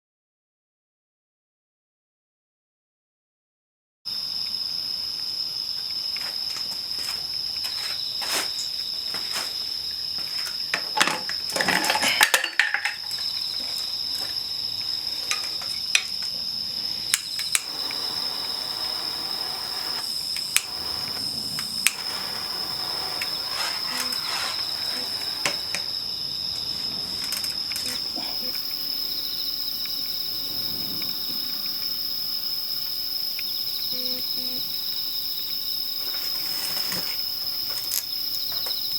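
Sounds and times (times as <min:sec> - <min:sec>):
crickets trilling: 0:04.1 - 0:38.9
clattering: 0:10.8 - 0:13.3.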